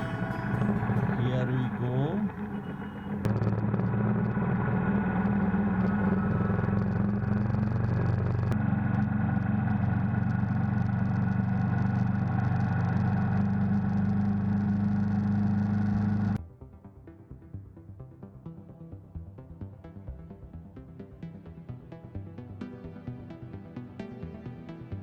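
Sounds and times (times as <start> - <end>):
motorcycle engine running: 0.0 - 16.4.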